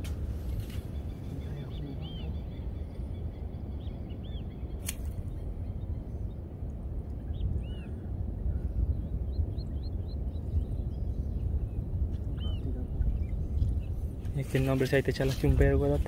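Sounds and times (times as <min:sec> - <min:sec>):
bird chirping: 0:00.0 - 0:06.6, 0:07.2 - 0:15.8
steady low rumble: 0:00.0 - 0:16.0
sharp click: 0:04.8 - 0:05.2.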